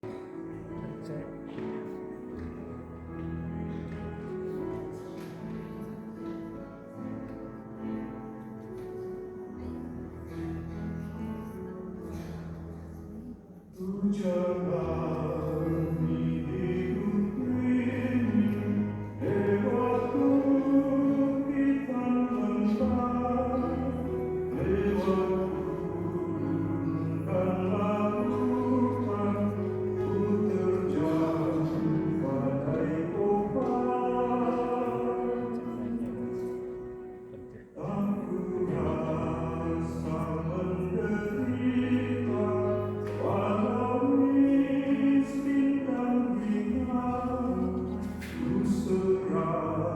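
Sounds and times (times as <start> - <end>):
choir singing: 12.1 - 36.9, 37.5 - 49.9.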